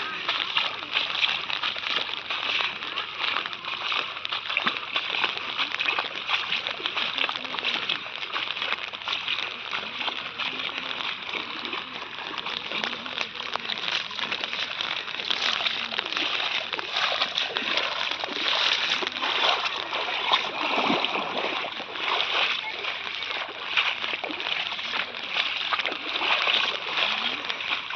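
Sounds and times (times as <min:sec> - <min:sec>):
floodwater splashing and sloshing: 0:00.0 - 0:27.9.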